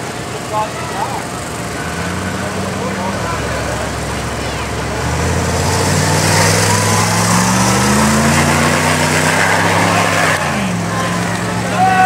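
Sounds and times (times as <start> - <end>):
racing engine at full throttle: 0.0 - 12.0.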